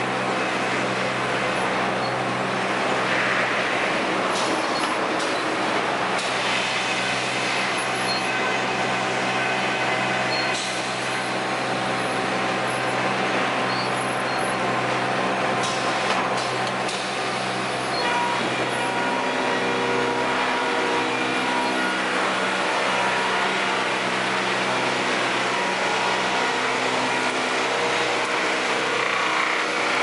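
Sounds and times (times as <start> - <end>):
sawmill machinery droning: 0.0 - 30.0
motor hum: 17.9 - 30.0.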